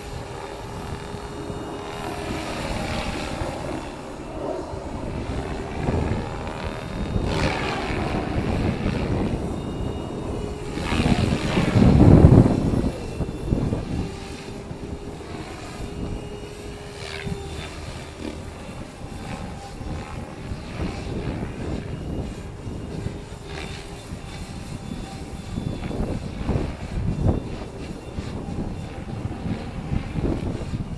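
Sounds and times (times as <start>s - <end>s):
rc helicopter rotor hum: 0.0s - 30.9s
wind buffeting microphone: 0.0s - 30.9s.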